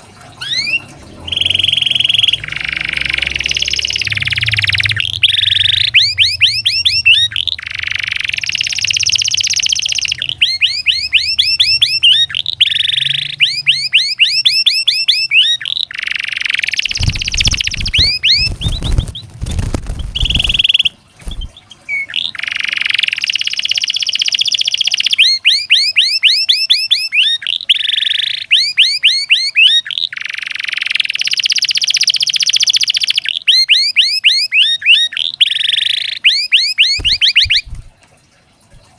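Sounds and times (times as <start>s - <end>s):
canary singing: 0.4s - 37.9s.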